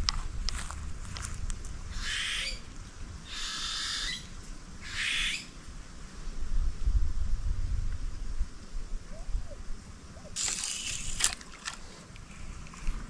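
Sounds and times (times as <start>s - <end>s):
bird squawking: 2.0s - 2.6s, 3.3s - 5.5s.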